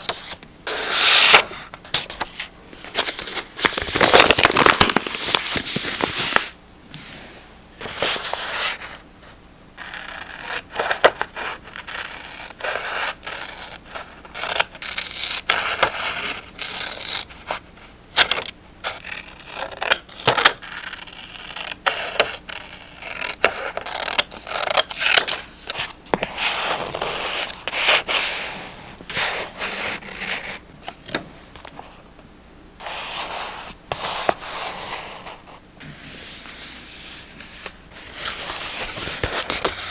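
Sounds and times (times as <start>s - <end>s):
paper rustling and scraping: 0.0s - 9.0s, 32.8s - 39.9s.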